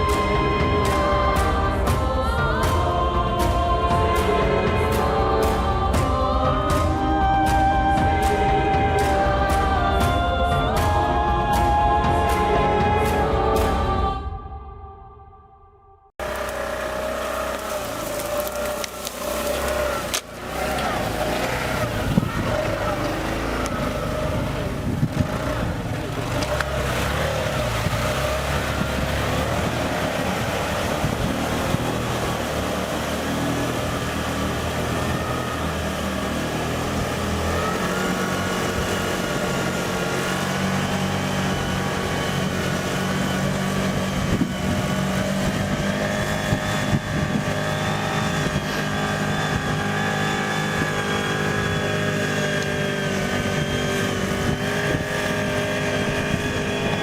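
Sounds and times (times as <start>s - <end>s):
heavy vehicle engine running: 0.0s - 14.1s, 16.2s - 57.0s.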